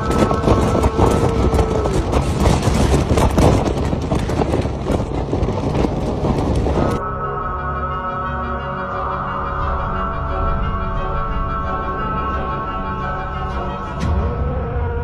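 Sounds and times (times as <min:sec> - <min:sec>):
wind and heavy sea rumble: 0:00.0 - 0:07.0
background music: 0:06.7 - 0:15.0.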